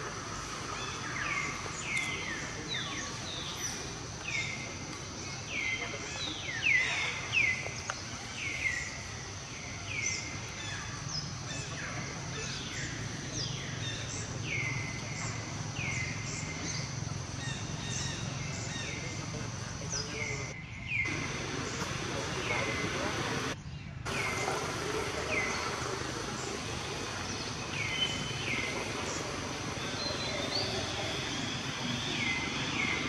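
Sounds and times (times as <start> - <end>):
downward-sweeping whistled bird call: 20.0 - 33.0.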